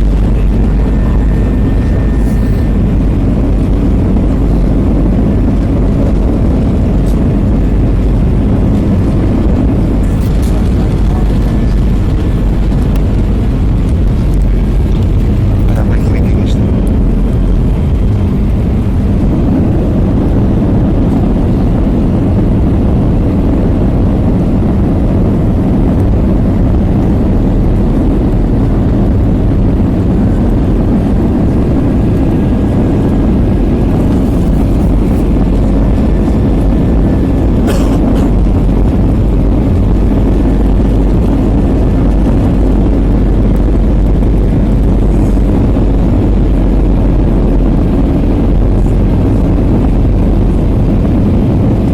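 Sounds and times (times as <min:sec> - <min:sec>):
faint high whine: 0:00.0 - 0:22.1
aircraft cabin engine rumble: 0:00.0 - 0:51.9.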